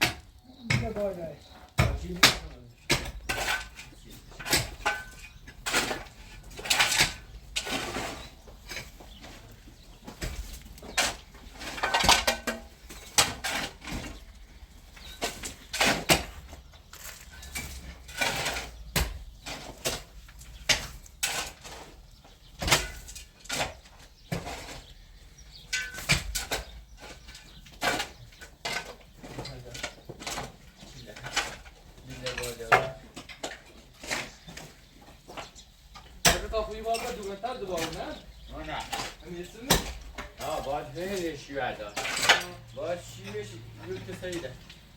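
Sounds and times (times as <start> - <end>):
sharp knocks and clatters: 0.0 - 44.9
voices: 0.4 - 6.2, 27.9 - 44.9.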